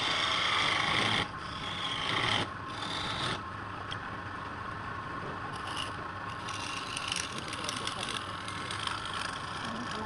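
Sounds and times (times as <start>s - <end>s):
steady hum: 0.0s - 10.0s
abrasive rubbing on wood: 5.6s - 10.0s.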